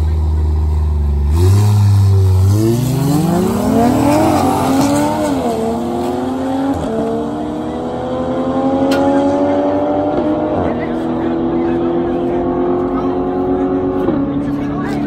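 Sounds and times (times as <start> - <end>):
car engine accelerating through gears: 1.2 - 15.0.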